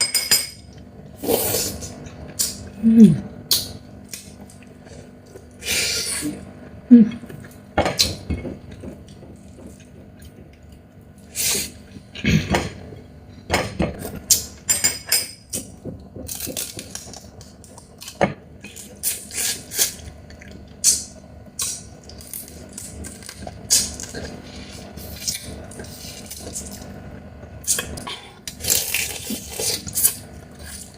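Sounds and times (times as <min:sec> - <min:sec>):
crab shell cracking and crunching: 0:16.2 - 0:24.4.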